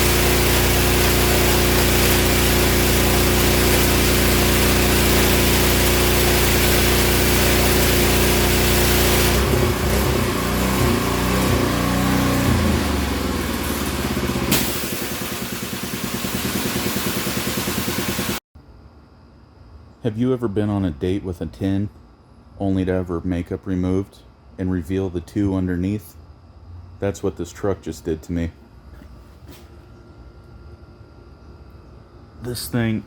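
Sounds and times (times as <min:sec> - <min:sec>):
water spray hissing: 0:00.0 - 0:11.9, 0:14.2 - 0:18.4
pressure washer engine running: 0:00.0 - 0:18.4.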